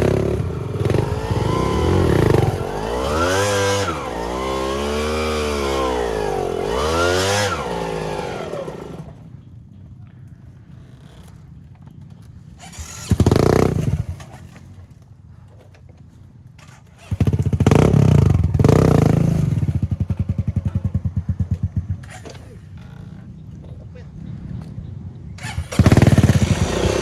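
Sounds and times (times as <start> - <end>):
dirt bike engine revving: 0.0 - 9.4, 12.6 - 14.7, 16.6 - 23.5, 25.4 - 27.0.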